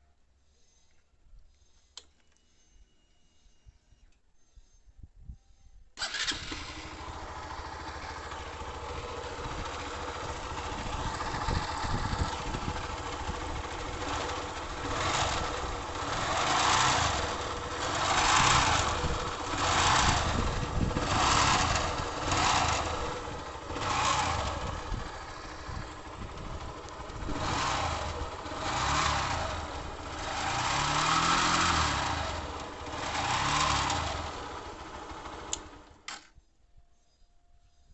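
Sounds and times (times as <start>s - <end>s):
motorcycle engine idling and revving: 6.0s - 36.1s.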